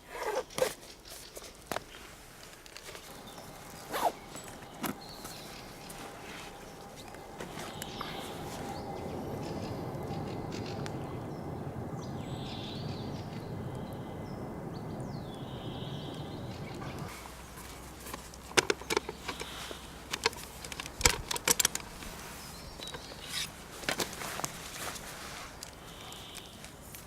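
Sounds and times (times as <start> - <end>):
bird calling: 2.8 - 21.2, 21.8 - 26.9
low rushing noise: 3.1 - 18.4
sharp clicks and knocks: 18.0 - 22.1.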